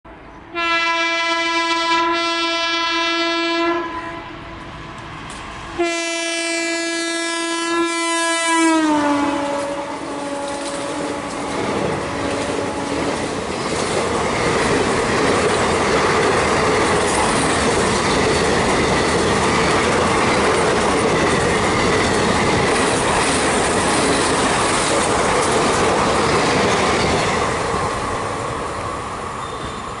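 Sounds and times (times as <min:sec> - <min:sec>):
locomotive air horn: 0:00.5 - 0:04.4, 0:05.8 - 0:11.6, 0:12.3 - 0:13.1
train wheels clattering on rails: 0:10.4 - 0:30.0.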